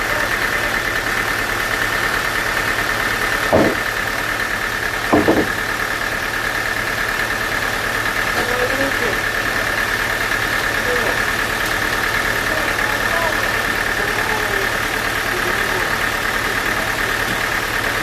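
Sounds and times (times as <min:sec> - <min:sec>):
sawmill machinery humming: 0:00.0 - 0:18.0
short knocks: 0:03.5 - 0:04.2, 0:05.1 - 0:05.9.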